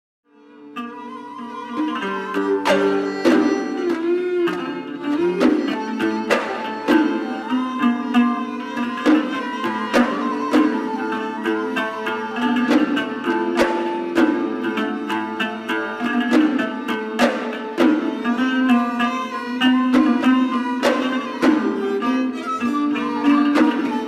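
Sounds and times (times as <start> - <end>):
bowed and plucked strings melody: 0.3 - 24.0
sharp drum strokes: 5.3 - 7.6, 16.2 - 18.5.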